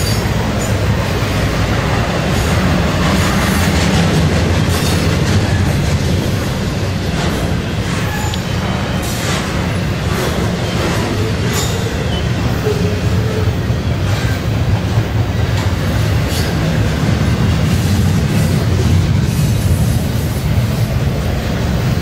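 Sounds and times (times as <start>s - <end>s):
clicking over rail joints: 0.0s - 19.7s
steel wheels rumbling on rail: 0.0s - 22.0s.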